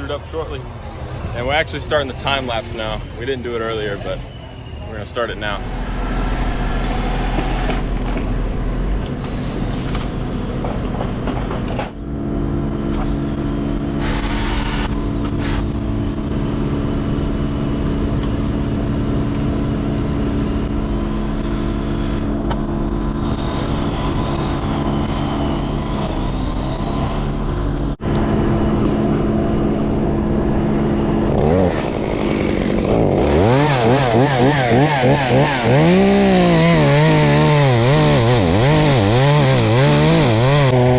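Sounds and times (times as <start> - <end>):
crane engine running: 0.0 - 40.9
saw revving: 5.2 - 11.9, 13.0 - 18.0, 28.7 - 40.9.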